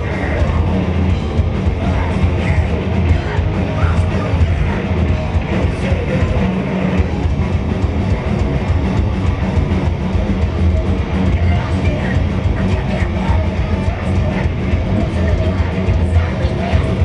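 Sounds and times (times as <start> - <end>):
bass guitar: 0.0 - 17.0
distorted electric guitars: 0.0 - 17.0
pounding drum kit: 0.0 - 17.0.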